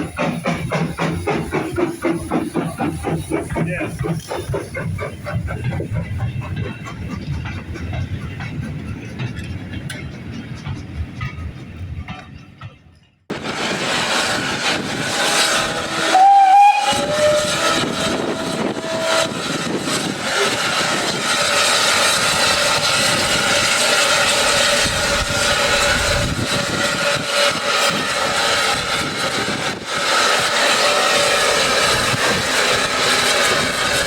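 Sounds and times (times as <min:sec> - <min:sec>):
steam hissing: 0:00.0 - 0:09.4, 0:13.3 - 0:34.0
steam locomotive whistle: 0:13.7 - 0:28.1.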